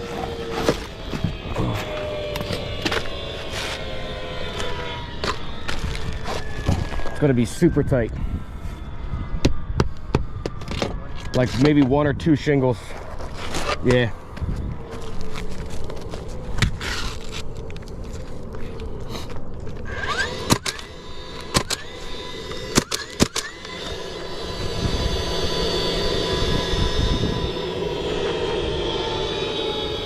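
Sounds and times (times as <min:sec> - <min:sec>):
aircraft overhead rushing: 0:00.0 - 0:30.0.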